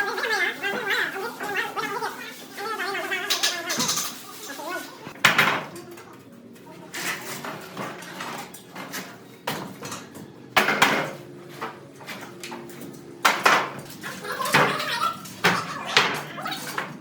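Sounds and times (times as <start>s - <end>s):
hard objects knocking: 8.8s - 11.8s.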